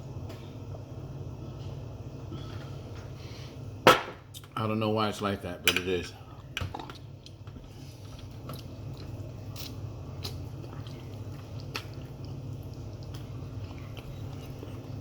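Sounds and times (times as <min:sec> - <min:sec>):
steady low hum: 0:00.0 - 0:15.0
person chewing: 0:06.4 - 0:15.0.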